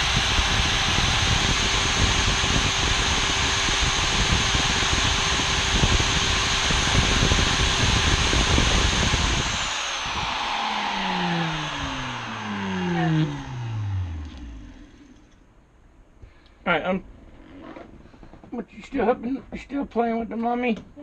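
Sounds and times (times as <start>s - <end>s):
electric router whining: 0.0s - 15.4s.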